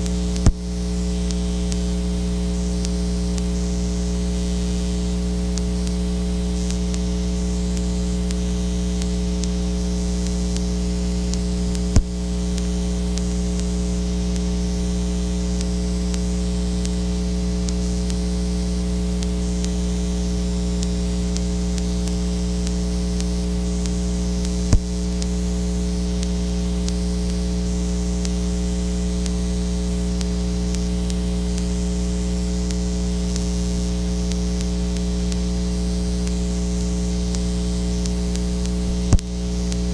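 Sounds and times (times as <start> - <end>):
electrical mains hum: 0.0 - 39.9
sharp click: 11.7 - 13.4.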